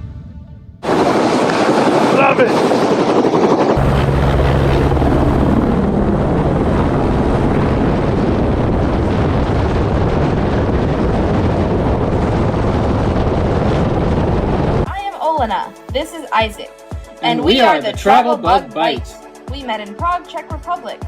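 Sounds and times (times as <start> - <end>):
low hum: 0.0 - 14.9
helicopter engine and rotor: 0.8 - 14.9.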